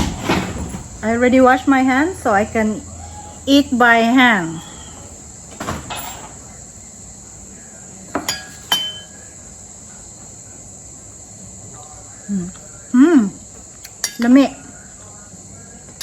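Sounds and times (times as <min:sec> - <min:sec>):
insects chirping: 0:00.0 - 0:16.0
dishes clinking: 0:08.1 - 0:09.3, 0:13.8 - 0:14.6.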